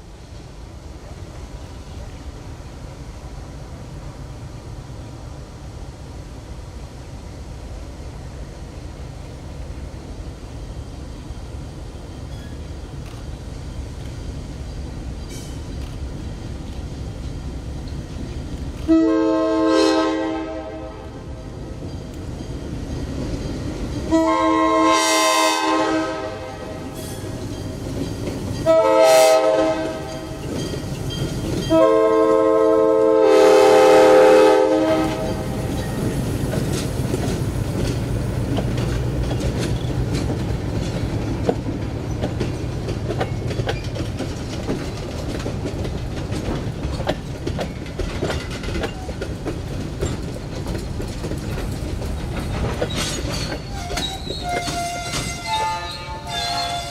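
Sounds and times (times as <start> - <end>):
train wheels clicking over rails: 0.0 - 56.9
locomotive air horn blasts: 18.9 - 21.2, 24.1 - 27.0, 28.6 - 30.4, 31.7 - 35.6, 53.7 - 56.9.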